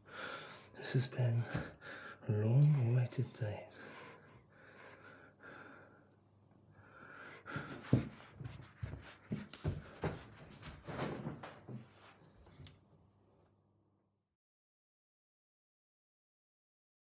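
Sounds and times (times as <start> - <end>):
person panting and gasping: 6.8 - 8.6.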